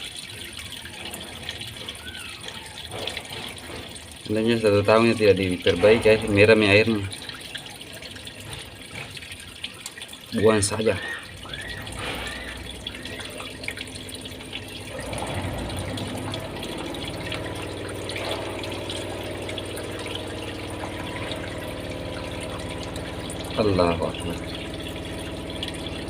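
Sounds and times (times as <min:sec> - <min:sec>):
water draining from washing machine: 0:00.0 - 0:26.0
steady machine hum: 0:11.0 - 0:26.0.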